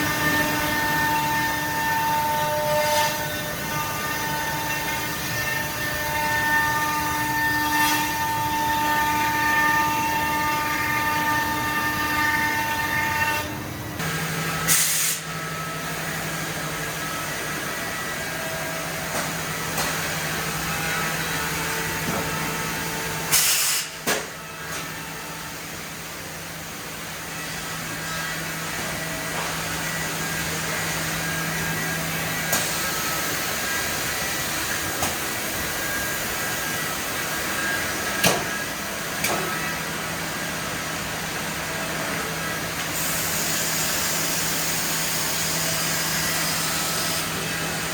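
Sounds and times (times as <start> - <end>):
compressed air hiss: 14.7 - 15.3, 23.3 - 24.0.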